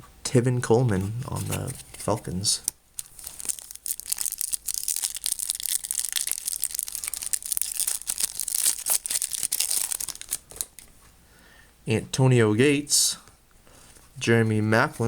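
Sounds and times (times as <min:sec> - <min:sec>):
foil wrapper tearing and crinkling: 0:03.0 - 0:10.8.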